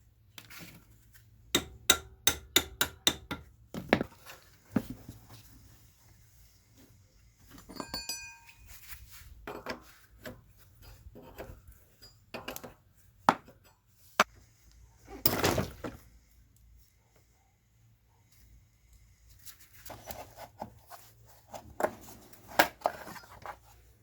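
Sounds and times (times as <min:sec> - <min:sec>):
metal tools clinking: 0:07.6 - 0:08.9, 0:10.8 - 0:12.7
metal piece ringing: 0:07.7 - 0:08.7.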